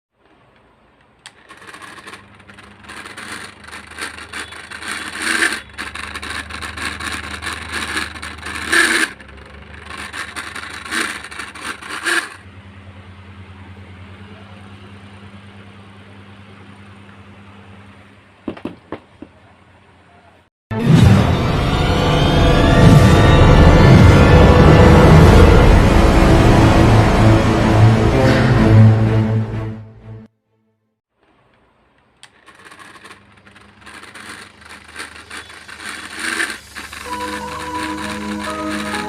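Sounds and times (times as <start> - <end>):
fan scraping noise: 0.2 - 12.6, 31.2 - 39.0
fan motor hum: 0.2 - 20.2, 31.2 - 39.0.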